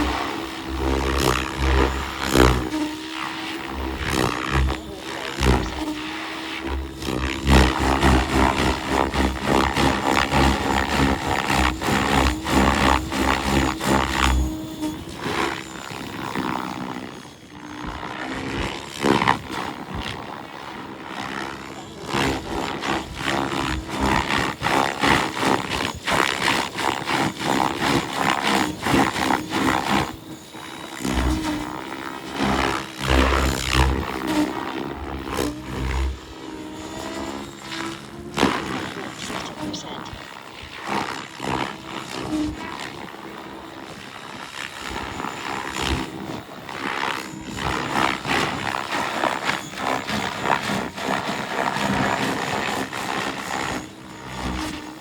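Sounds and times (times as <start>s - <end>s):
rc helicopter engine and rotor: 0.0s - 55.0s.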